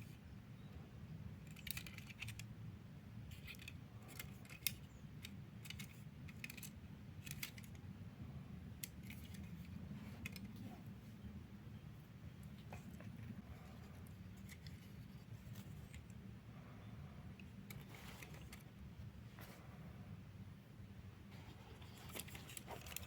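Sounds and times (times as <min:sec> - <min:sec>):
low steady hum: 0:00.0 - 0:23.0
light clicks and rattles: 0:03.3 - 0:07.9, 0:08.7 - 0:10.8.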